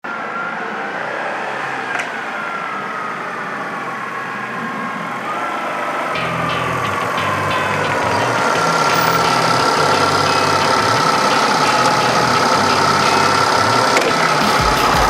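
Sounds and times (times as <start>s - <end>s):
vehicle whine falling in pitch: 4.3s - 15.0s
deep engine rumble: 6.2s - 15.0s.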